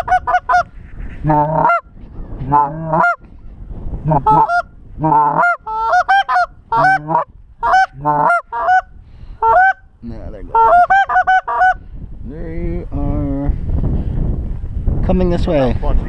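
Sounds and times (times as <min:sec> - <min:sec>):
goose clucking: 0:00.0 - 0:01.8, 0:02.5 - 0:03.2, 0:04.1 - 0:09.8, 0:10.5 - 0:11.8
goose honking: 0:00.0 - 0:01.8, 0:02.5 - 0:03.2, 0:04.1 - 0:09.8.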